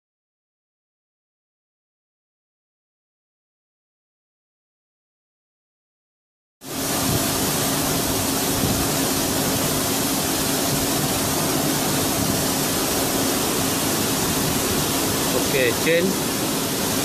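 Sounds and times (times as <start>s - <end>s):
lathe running with hiss: 6.7s - 17.0s.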